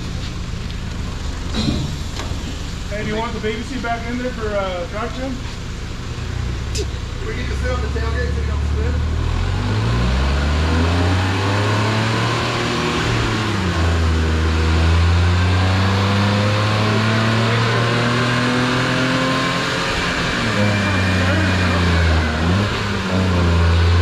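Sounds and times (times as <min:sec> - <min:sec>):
small car engine revving: 0:06.2 - 0:24.0.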